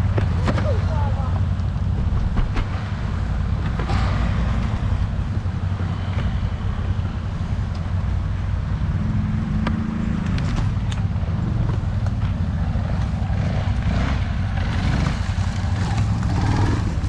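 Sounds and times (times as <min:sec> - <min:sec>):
vehicle knocks and rattles: 0:00.0 - 0:08.4
off-road vehicle engine droning: 0:00.0 - 0:17.0.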